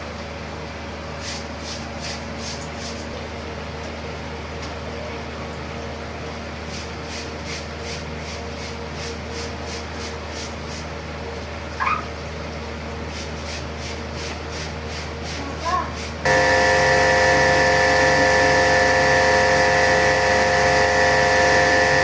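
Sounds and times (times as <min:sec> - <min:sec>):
machine hum: 0:16.2 - 0:22.0.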